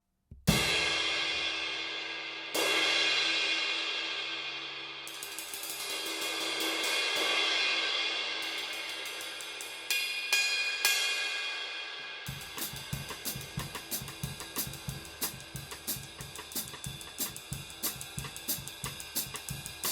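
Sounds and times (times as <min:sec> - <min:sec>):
stick taps on cymbal: 0:08.5 - 0:19.9.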